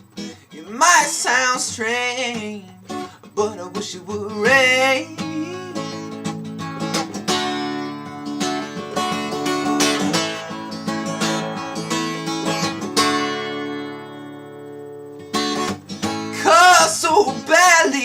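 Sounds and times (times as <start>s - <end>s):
acoustic guitar strumming chords: 0.0s - 18.0s
person singing: 3.4s - 6.0s, 16.4s - 18.0s.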